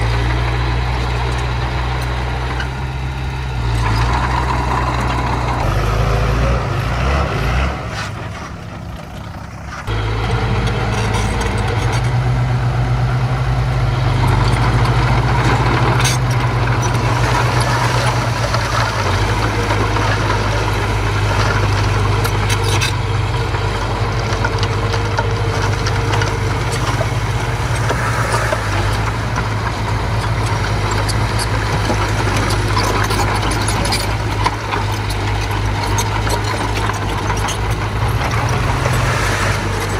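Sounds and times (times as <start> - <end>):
diesel engine running: 0.0 - 39.9
sharp clicks and clanks: 14.2 - 39.9.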